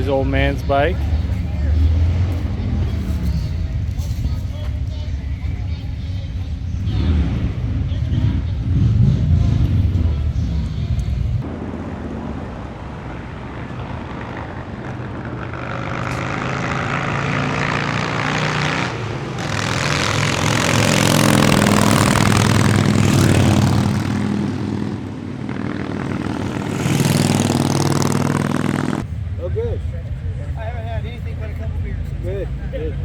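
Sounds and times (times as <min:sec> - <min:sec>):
motorcycle engines revving: 0:00.0 - 0:33.0.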